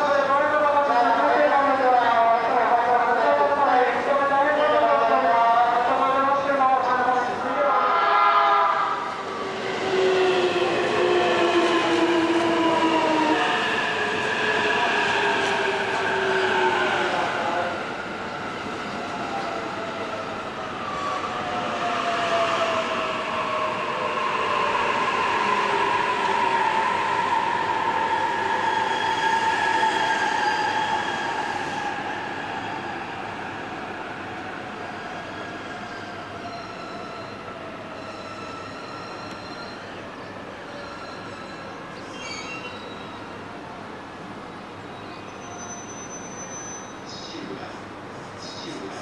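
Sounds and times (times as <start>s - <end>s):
train whining and rumbling: 0.0s - 49.0s.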